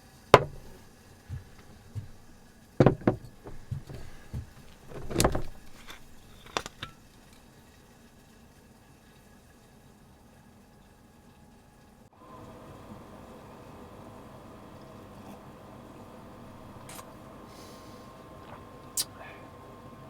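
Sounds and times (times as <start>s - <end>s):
light knocks and clunks: 0.4s - 7.0s.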